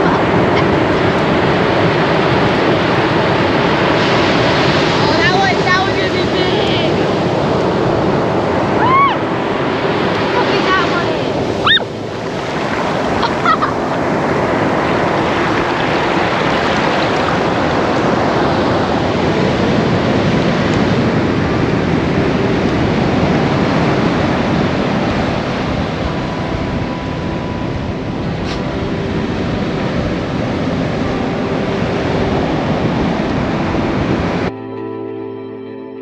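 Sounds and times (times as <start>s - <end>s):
ocean surf rushing: 0.0s - 34.5s
high rising squeaks: 11.6s - 11.9s.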